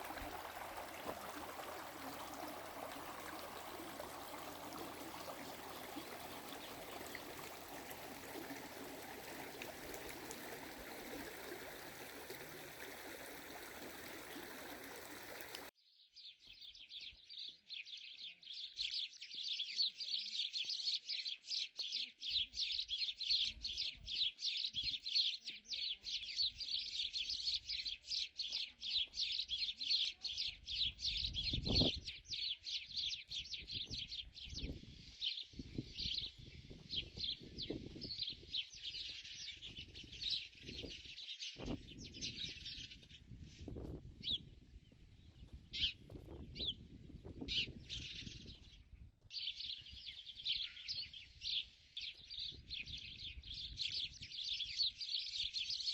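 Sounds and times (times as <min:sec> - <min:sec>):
small birds chirping: 0:00.0 - 0:55.9.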